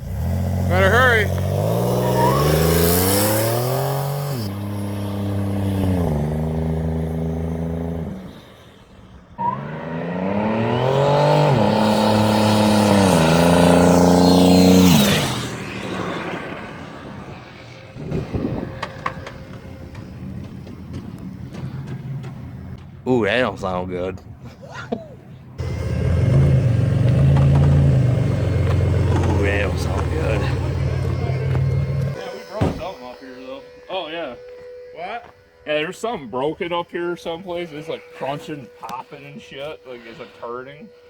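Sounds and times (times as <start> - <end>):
minivan engine at full throttle: 0.0 - 22.4, 25.6 - 33.2.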